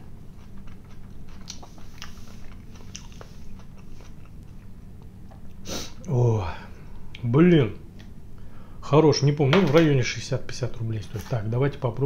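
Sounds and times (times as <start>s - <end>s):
person chewing: 0.0s - 6.1s
wet mouth clicks and smacks: 0.5s - 3.8s.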